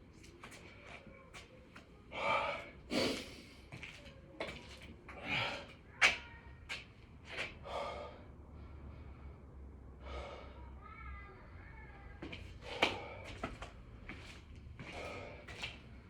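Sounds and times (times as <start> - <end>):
man breathing hard: 7.6 - 10.8, 12.6 - 13.5, 14.8 - 15.6.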